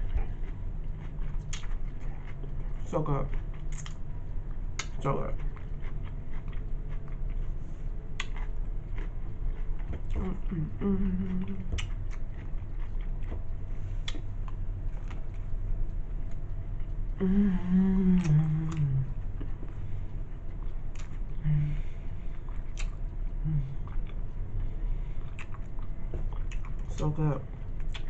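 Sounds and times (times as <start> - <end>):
sandwich chewing with lip smacks: 0.0 - 10.4, 11.1 - 17.2, 18.2 - 21.4, 22.1 - 28.0
person humming mmm: 10.1 - 11.9, 17.1 - 19.6, 21.3 - 22.0, 23.4 - 24.2.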